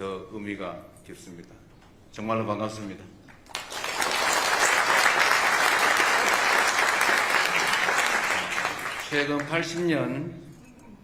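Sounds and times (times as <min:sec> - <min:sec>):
audience applauding: 0:03.4 - 0:09.9.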